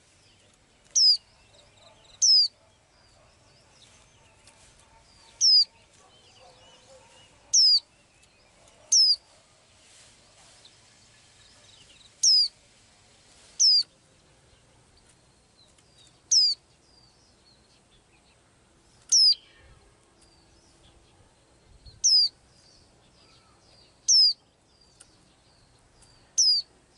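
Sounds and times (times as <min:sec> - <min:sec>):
small bird calling: 0:00.8 - 0:10.0, 0:11.5 - 0:12.6, 0:13.6 - 0:14.0, 0:16.0 - 0:16.7, 0:19.0 - 0:21.0, 0:21.8 - 0:26.8.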